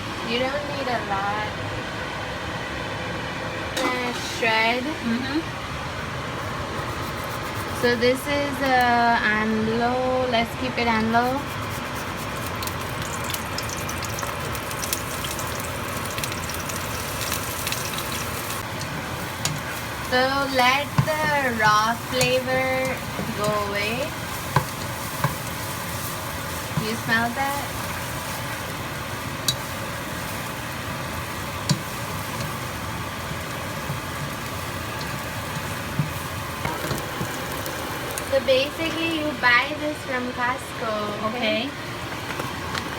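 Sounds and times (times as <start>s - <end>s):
food sizzling in a pan: 10.9s - 39.8s
utensil clicking on pan: 29.4s - 29.8s, 31.6s - 32.6s.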